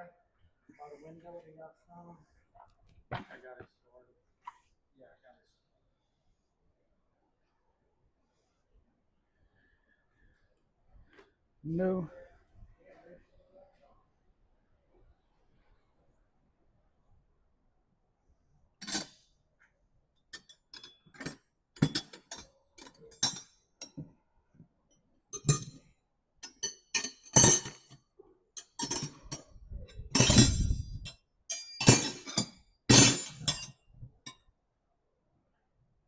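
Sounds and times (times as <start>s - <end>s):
metal wrenches clanking: 18.8s - 19.2s, 20.4s - 24.0s, 25.4s - 25.8s, 26.4s - 28.0s, 28.6s - 33.8s.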